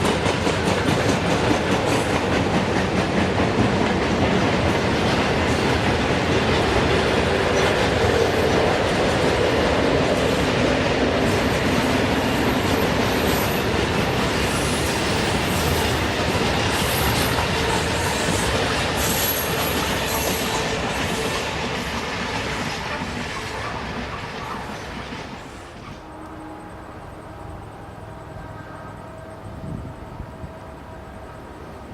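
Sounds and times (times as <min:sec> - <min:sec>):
train wheels clickety-clack: 0:00.0 - 0:26.2.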